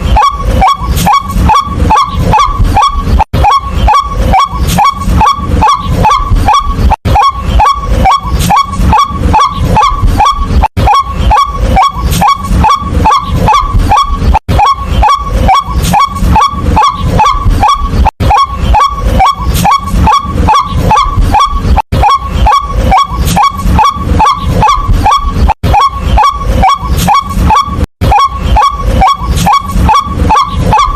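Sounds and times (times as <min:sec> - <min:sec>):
waterhen harsh croaking calls: 0:00.0 - 0:30.9.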